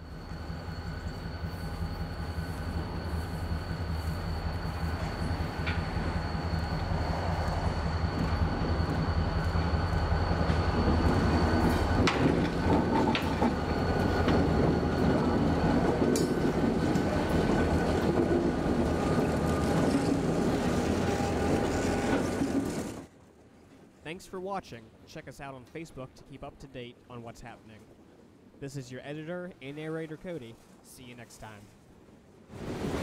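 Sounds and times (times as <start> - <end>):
train wheels rumbling on rails: 0.0 - 23.9
diesel locomotive engines droning: 0.0 - 33.0.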